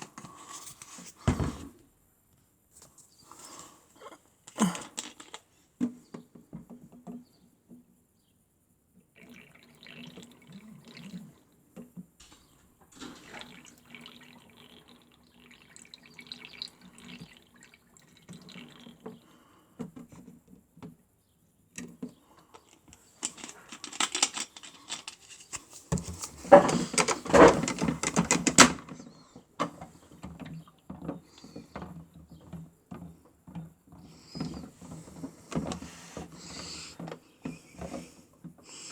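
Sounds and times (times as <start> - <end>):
water trickling and splashing: 9.2 - 11.4, 12.9 - 19.5.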